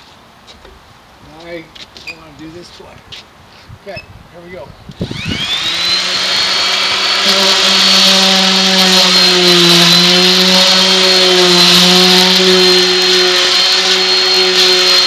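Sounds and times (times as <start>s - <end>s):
electric palm sander whining: 4.9s - 15.0s.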